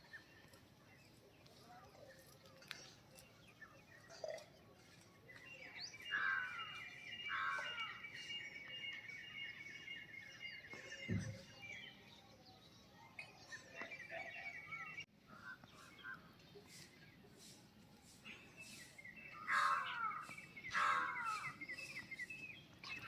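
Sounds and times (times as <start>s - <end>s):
short falling bird calls: 19.4s - 21.6s.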